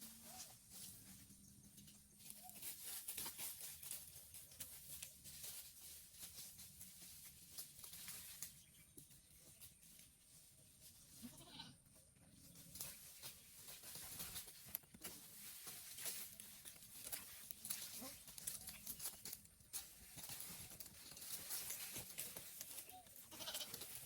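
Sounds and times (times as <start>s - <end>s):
faint goat bleat: 11.2s - 11.8s, 22.9s - 23.8s
light clicks and rustling: 12.6s - 24.0s.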